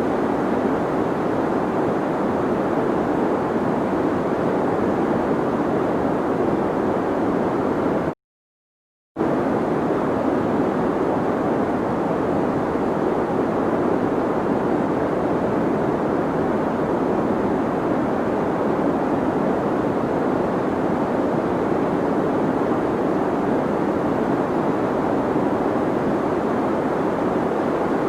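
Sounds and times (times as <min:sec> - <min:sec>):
deep white noise hiss: 0:09.2 - 0:28.0.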